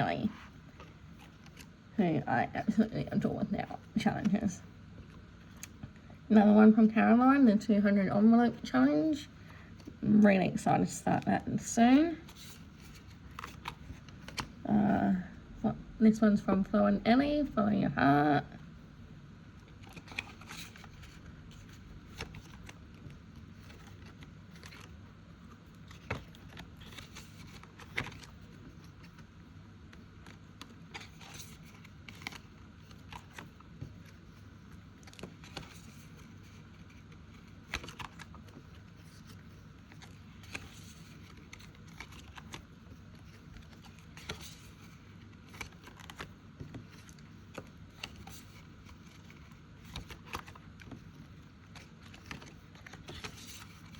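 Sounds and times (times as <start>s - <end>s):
paper and plastic rustling: 19.7s - 53.9s.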